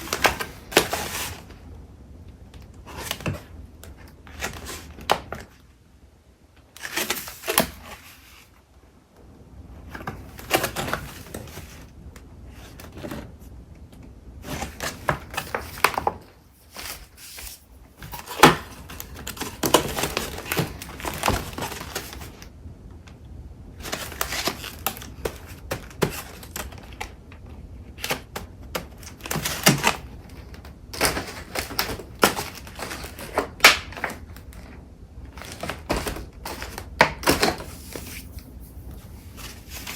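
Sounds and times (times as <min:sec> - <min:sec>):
paper rustling: 0:14.5 - 0:22.5, 0:35.4 - 0:39.9.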